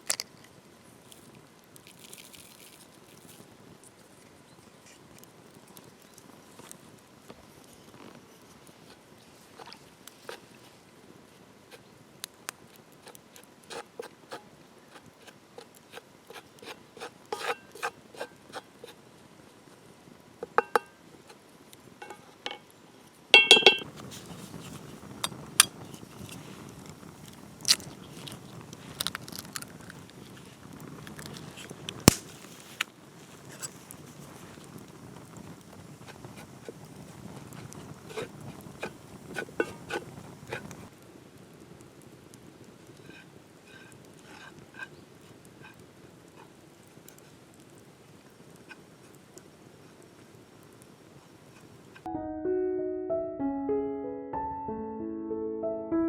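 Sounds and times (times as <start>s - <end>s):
steady background noise: 0.0s - 52.1s
ringing clink: 23.4s - 23.8s
utensils and dishes clicking: 23.4s - 23.8s.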